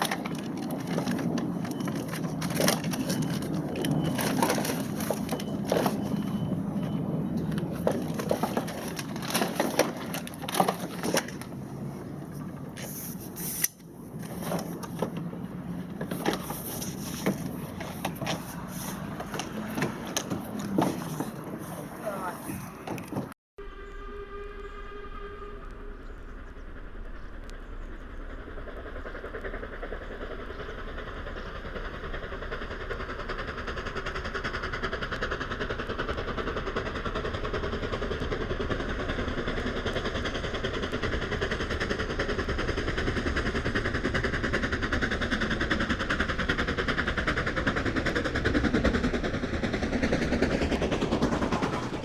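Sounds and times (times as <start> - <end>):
train rumble and rail noise: 0.0 - 52.0
train horn tone: 23.6 - 26.7.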